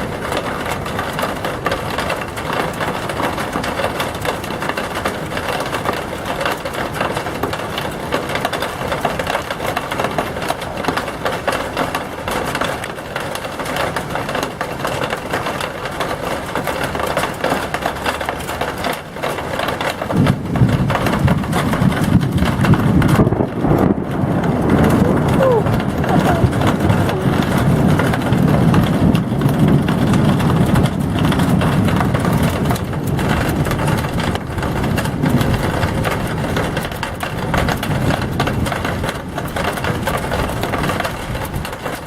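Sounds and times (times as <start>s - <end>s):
heavy rain pouring: 0.0s - 42.0s
low thunder rumble: 19.2s - 42.0s.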